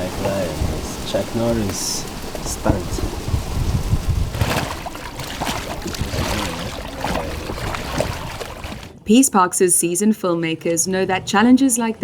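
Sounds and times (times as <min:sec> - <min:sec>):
water splashing and sloshing: 0:00.0 - 0:09.0.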